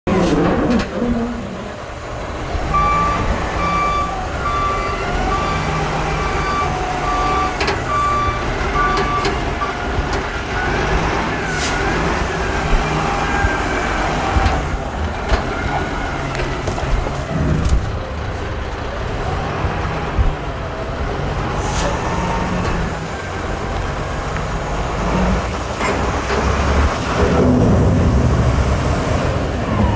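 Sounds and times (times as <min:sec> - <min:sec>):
heavy vehicle engine rumbling: 0:00.0 - 0:29.9
reversing alarm beeping: 0:02.6 - 0:09.8.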